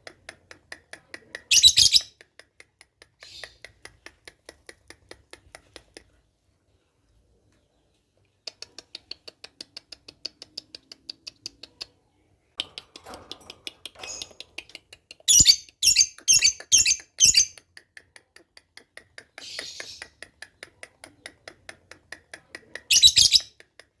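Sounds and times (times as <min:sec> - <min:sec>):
lovebird shrill chirps: 0:01.5 - 0:02.1, 0:15.3 - 0:17.6, 0:22.9 - 0:23.5.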